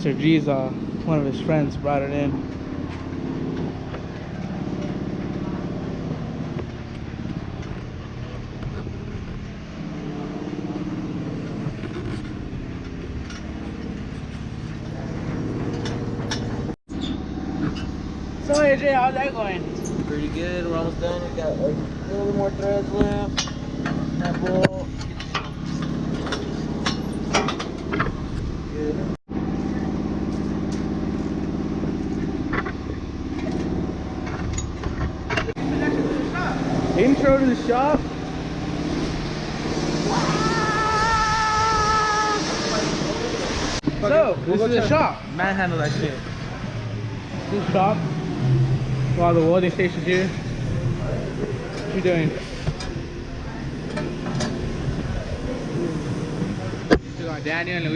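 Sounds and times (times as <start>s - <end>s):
motor droning: 45.0s - 52.8s, 53.8s - 56.9s.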